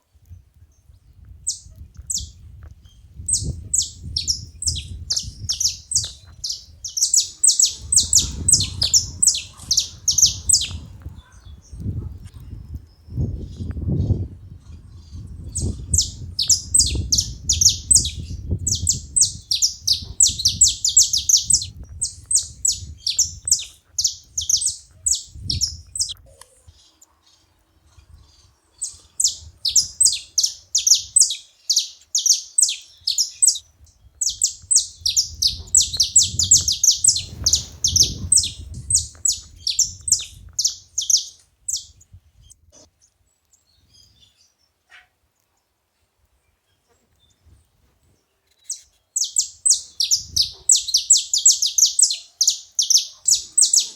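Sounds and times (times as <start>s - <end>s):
finch chattering: 3.3s - 10.9s, 15.6s - 26.2s, 28.8s - 33.6s, 34.2s - 41.9s, 49.2s - 53.9s.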